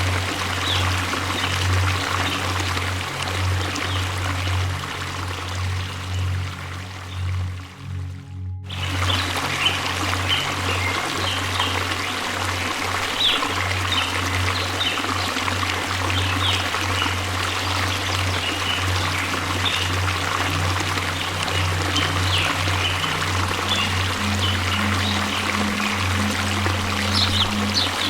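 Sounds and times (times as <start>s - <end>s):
low hum: 0.0s - 28.0s
waterfall rushing: 8.7s - 28.0s.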